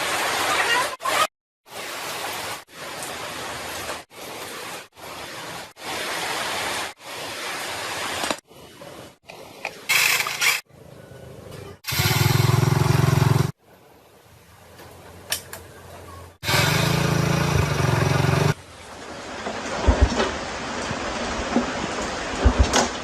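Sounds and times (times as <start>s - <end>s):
small motorcycle engine running: 11.9s - 13.5s, 16.4s - 18.6s.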